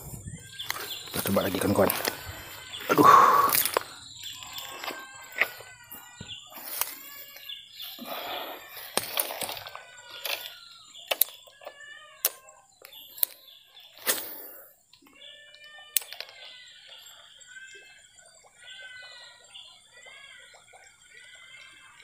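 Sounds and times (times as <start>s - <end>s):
birds calling: 0.0s - 22.0s
sharp clicks: 3.4s - 5.6s, 8.8s - 13.4s, 15.9s - 16.5s.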